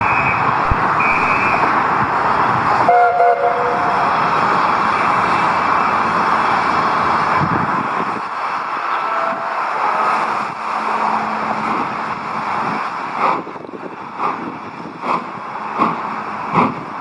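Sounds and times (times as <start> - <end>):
steam locomotive whistle: 0.0 - 1.8, 2.8 - 4.2, 9.0 - 10.1
loud steady rushing noise: 0.0 - 17.0
short shrill whistle notes: 1.0 - 1.6.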